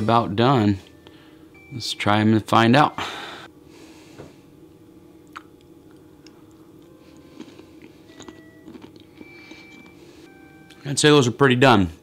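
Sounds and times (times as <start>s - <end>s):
low steady hum: 0.0s - 12.0s
person chewing carrot: 5.2s - 10.0s.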